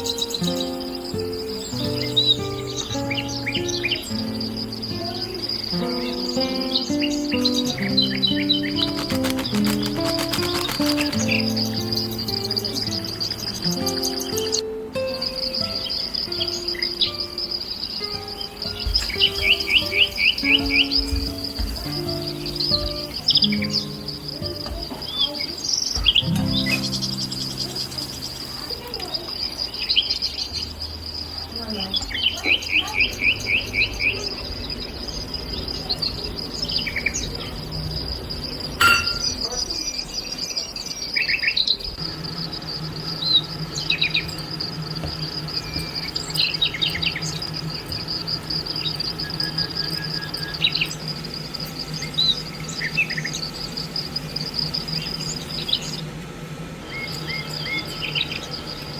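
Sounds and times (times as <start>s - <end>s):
high-pitched insect drone: 0.0s - 30.2s, 42.0s - 56.1s
birds chirping and calling: 0.0s - 58.9s.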